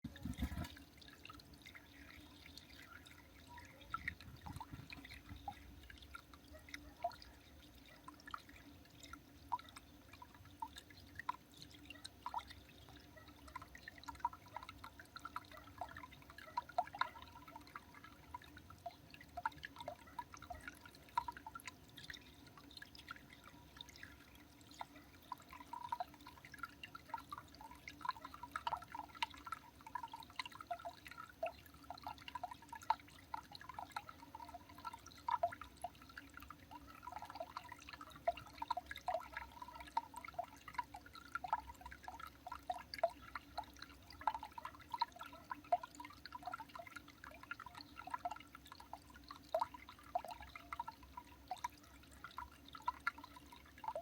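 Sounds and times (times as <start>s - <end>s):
faint low hum: 0.0s - 54.0s
water dripping: 0.0s - 54.0s.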